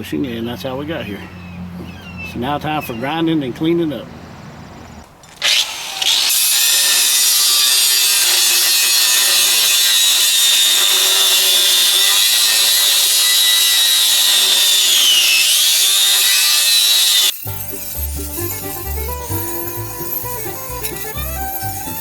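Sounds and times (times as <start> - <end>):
angle grinder grinding steel: 5.3 - 22.0.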